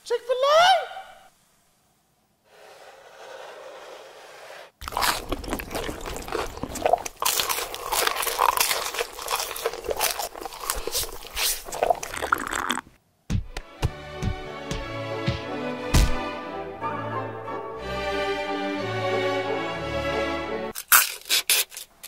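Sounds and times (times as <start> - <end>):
crunching and chewing fried chicken: 4.8 - 12.8, 20.8 - 21.9.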